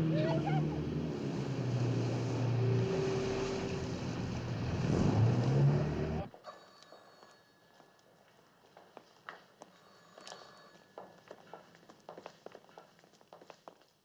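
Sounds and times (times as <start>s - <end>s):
engine running: 0.0s - 6.3s.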